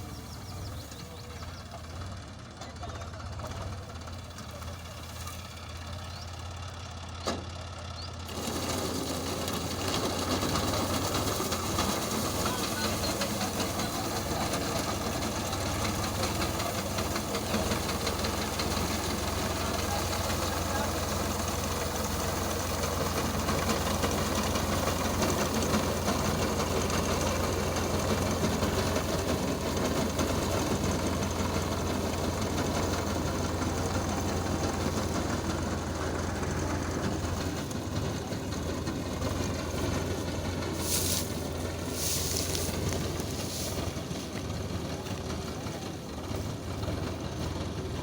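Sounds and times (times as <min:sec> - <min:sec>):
harvester engine humming: 0:00.0 - 0:48.0
short hissy bursts: 0:40.7 - 0:44.0.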